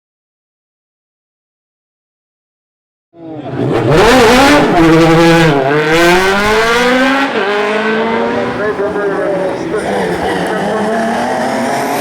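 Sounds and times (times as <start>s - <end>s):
race car engine at full throttle: 3.2s - 12.0s.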